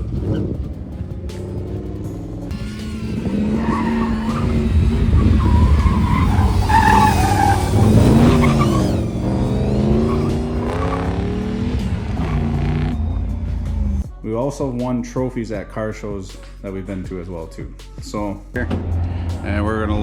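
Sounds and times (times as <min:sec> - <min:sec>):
car engine revving hard: 0:00.0 - 0:14.0
tyres squealing: 0:00.0 - 0:14.0.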